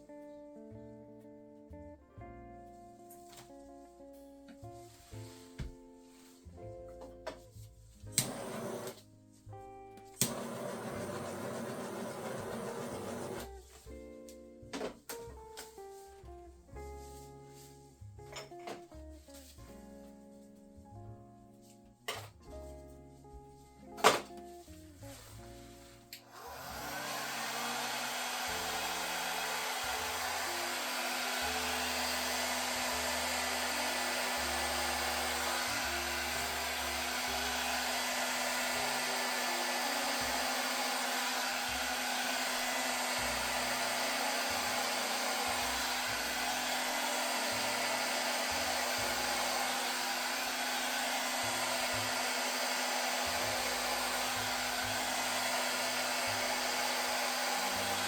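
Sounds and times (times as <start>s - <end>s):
hot-air blower running: 8.2s - 9.0s, 10.2s - 13.5s, 26.2s - 58.0s.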